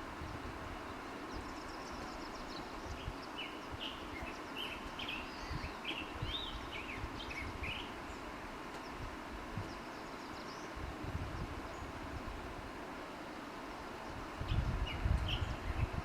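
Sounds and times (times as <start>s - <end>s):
bird chirping: 0.3s - 9.0s, 9.6s - 10.8s.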